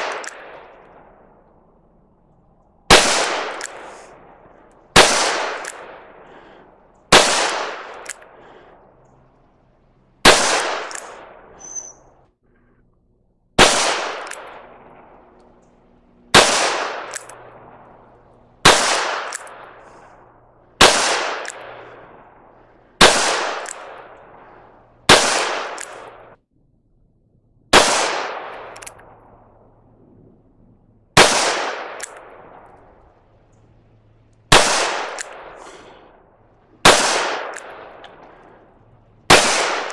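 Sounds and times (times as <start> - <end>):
revolver shots echoing: 16.3 - 20.0.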